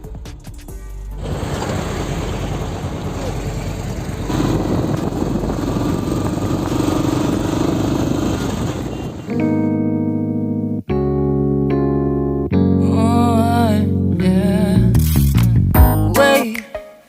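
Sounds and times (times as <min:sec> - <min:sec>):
motorcycle running: 0:01.2 - 0:09.7.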